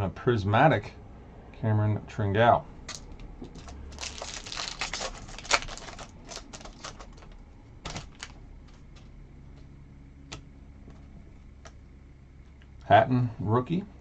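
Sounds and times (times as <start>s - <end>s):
trading cards clicking and rustling: 2.9s - 11.8s.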